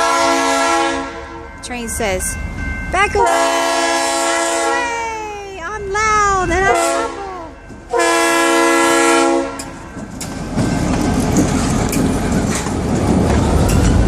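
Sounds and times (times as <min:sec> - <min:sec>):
train horn blast: 0:00.0 - 0:01.4, 0:03.2 - 0:05.0, 0:06.6 - 0:07.3, 0:07.9 - 0:09.8
train rumble and wheel clatter: 0:00.0 - 0:14.0.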